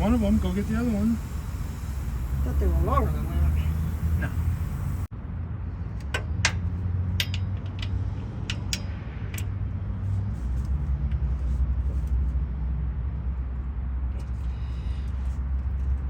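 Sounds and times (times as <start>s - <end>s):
low mechanical rumble: 0.0s - 5.2s.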